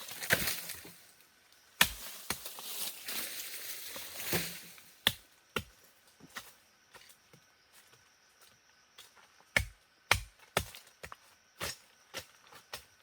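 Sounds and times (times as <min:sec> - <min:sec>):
rustling of leaves and brush: 0:00.0 - 0:09.5.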